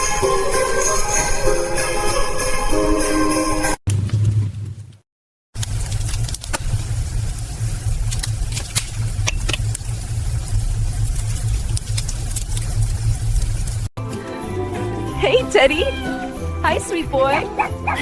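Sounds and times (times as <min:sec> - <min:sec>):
low mechanical rumble: 0:05.6 - 0:13.9.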